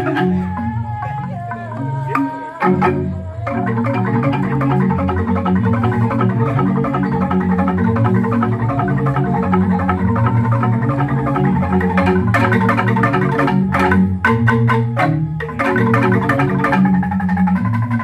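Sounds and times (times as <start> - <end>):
bamboo gamelan ensemble playing: 0.0 - 18.0.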